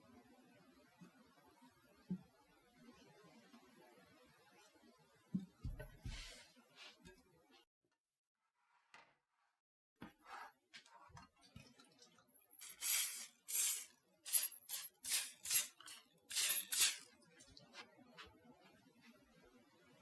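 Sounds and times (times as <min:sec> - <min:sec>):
spatula scraping batter in bowl: 0:12.6 - 0:17.1.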